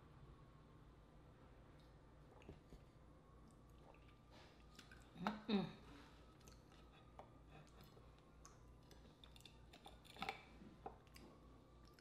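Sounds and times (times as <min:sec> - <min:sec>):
mouth chewing smacks: 0:03.5 - 0:05.5, 0:06.3 - 0:12.0.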